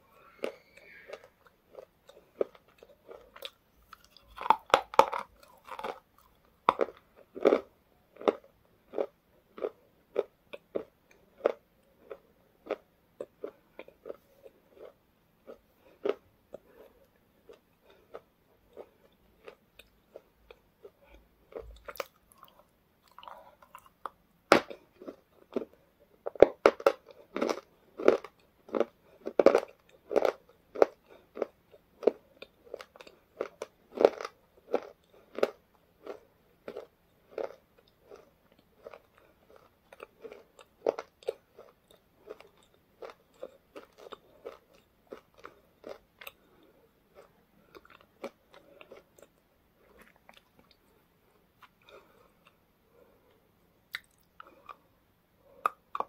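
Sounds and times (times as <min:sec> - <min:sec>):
person crunching snack: 0:00.1 - 0:20.3, 0:21.5 - 0:51.0, 0:53.9 - 0:54.8.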